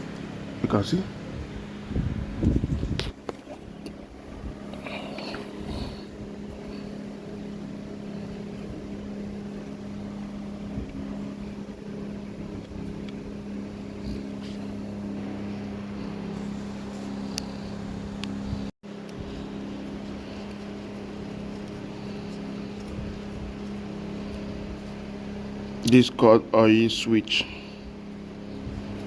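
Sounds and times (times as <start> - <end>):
motor humming: 0.0 - 29.0.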